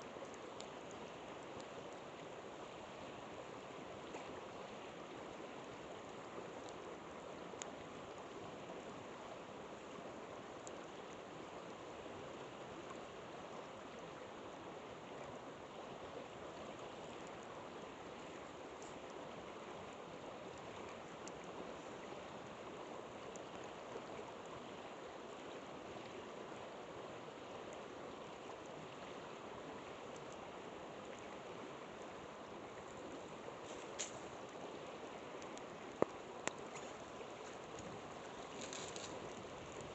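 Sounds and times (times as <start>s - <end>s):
river flowing: 0.0s - 39.9s
campfire crackling: 9.6s - 13.0s, 17.2s - 24.6s, 32.0s - 39.9s.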